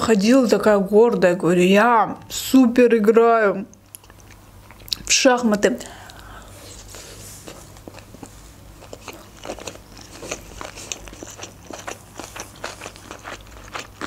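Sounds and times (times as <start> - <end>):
person chewing with mouth clicks: 3.7 - 5.1, 6.0 - 14.0.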